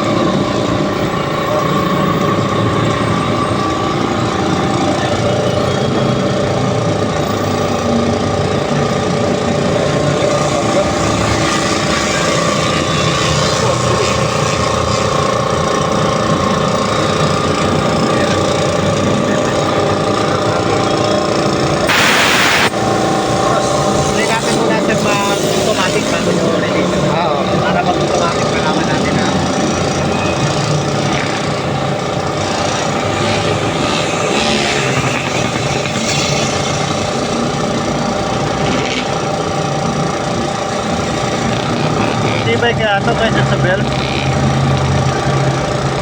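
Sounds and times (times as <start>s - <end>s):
air compressor running: 0.0s - 46.0s.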